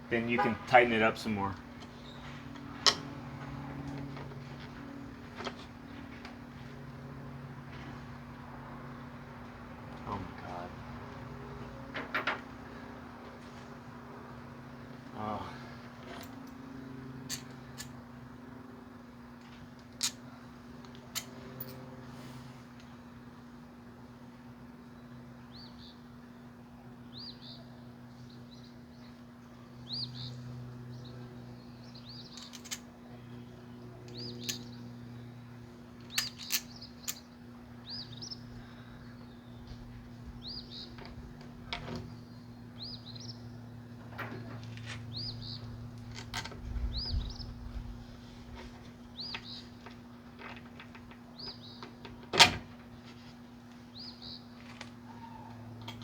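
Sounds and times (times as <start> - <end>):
small bird chirping: 36.2 - 38.5.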